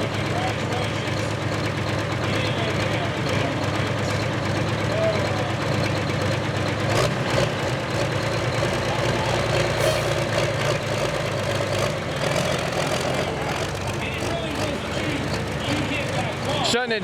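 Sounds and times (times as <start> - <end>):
tractor engine running hard: 0.0 - 17.0.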